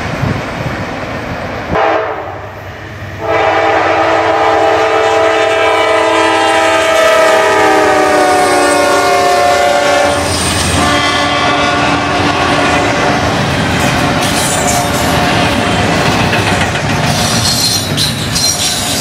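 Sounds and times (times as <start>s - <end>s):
locomotive rumble: 0.0s - 19.0s
train air horn chord: 1.7s - 2.6s, 3.2s - 13.2s
freight cars clattering on rails: 12.3s - 19.0s.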